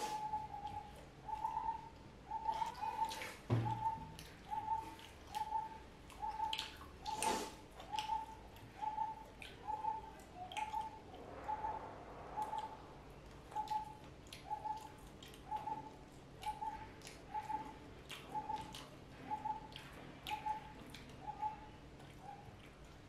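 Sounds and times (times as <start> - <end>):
people chewing wetly: 2.4 - 11.0, 13.3 - 23.0.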